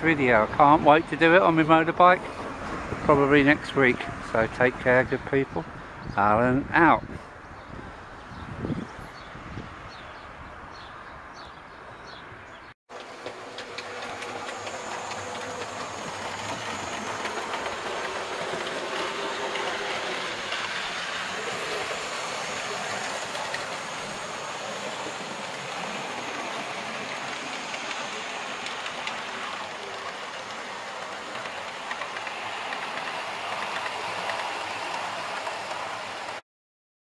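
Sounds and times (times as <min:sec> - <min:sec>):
train running along track: 0:00.0 - 0:05.8, 0:12.9 - 0:36.4.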